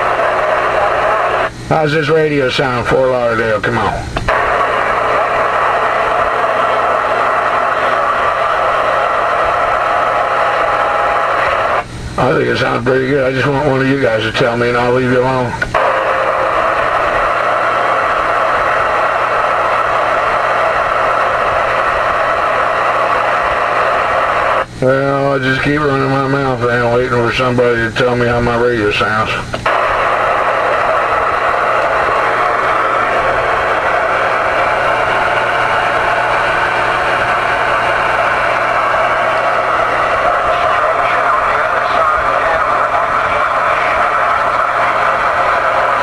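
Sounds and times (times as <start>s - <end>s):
radio static hiss: 0.0s - 46.0s
low hum: 28.5s - 46.0s.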